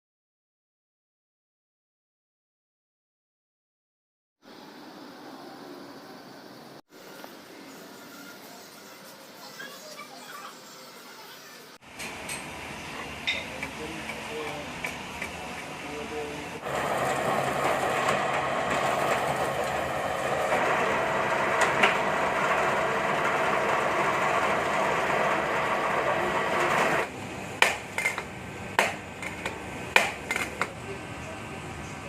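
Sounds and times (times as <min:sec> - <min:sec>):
power tool running: 0:12.9 - 0:27.1.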